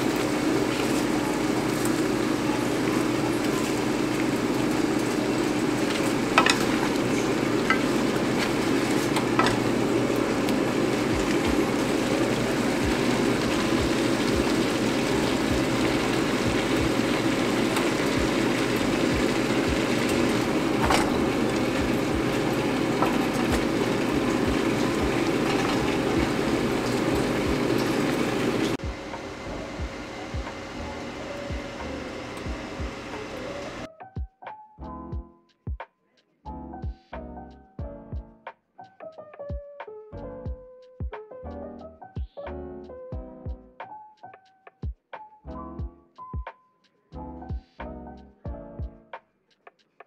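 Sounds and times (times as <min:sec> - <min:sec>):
food sizzling in a wok: 0:00.0 - 0:33.9.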